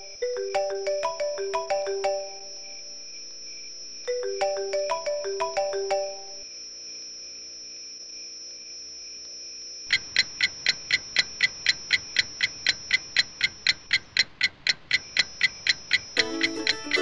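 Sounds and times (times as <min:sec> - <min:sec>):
faint high-pitched tone: 0:00.0 - 0:03.2, 0:04.1 - 0:06.5
clock ticking: 0:09.9 - 0:17.0.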